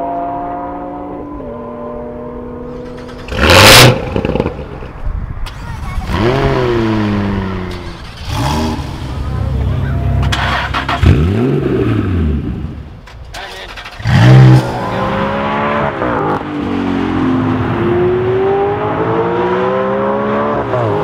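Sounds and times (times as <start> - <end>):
sports car engine revving: 0.0 - 4.8, 6.0 - 12.8, 13.8 - 21.0
engine starting: 2.7 - 4.0, 5.4 - 6.1, 7.6 - 9.0, 10.3 - 11.2, 13.1 - 14.6.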